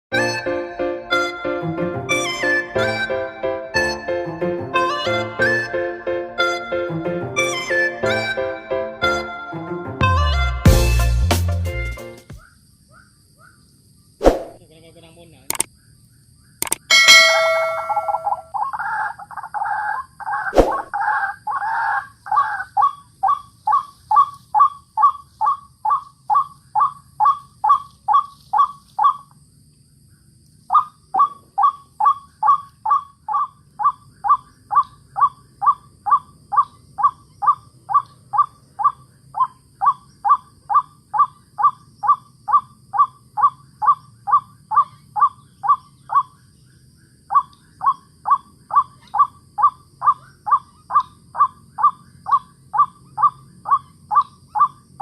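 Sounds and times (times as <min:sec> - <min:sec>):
waterhen calling falling notes: 0:16.9 - 0:18.7.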